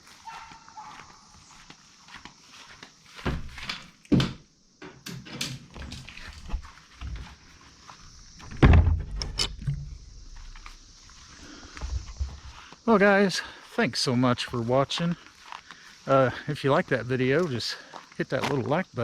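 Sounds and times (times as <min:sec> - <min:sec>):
dull thumps and knocks: 0:08.4 - 0:10.7.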